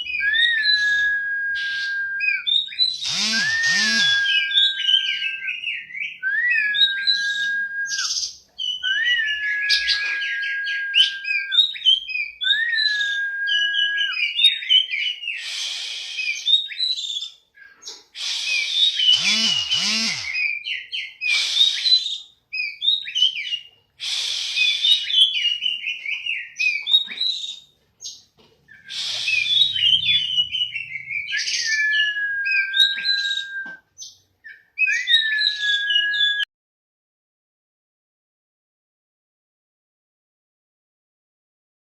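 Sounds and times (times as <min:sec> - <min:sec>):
songbird whistled notes: 0:00.0 - 0:17.3, 0:28.7 - 0:36.5
bird chirps and trills: 0:01.6 - 0:13.2, 0:13.8 - 0:23.8, 0:24.4 - 0:36.4.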